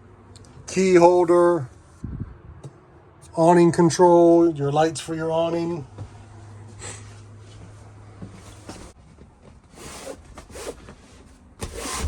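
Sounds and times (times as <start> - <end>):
rustling and scraping handling noises: 6.0 - 12.0.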